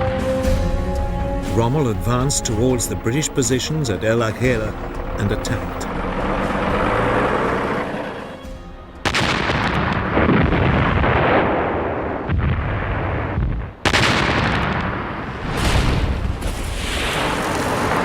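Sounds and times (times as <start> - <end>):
artillery firing: 9.0 - 18.0
shells exploding: 9.0 - 18.0.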